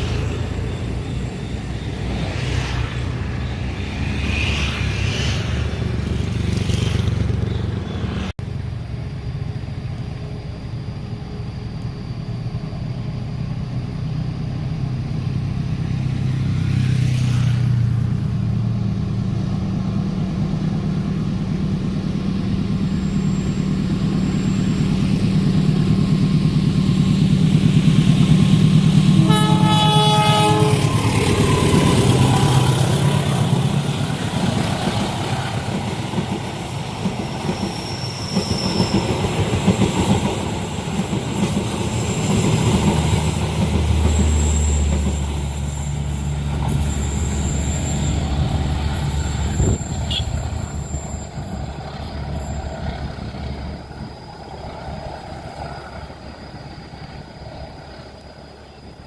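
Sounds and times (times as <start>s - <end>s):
locomotive engine humming: 0.0s - 59.0s
train cars rushing on rails: 0.0s - 59.0s
train horn: 29.1s - 32.5s, 49.6s - 51.0s.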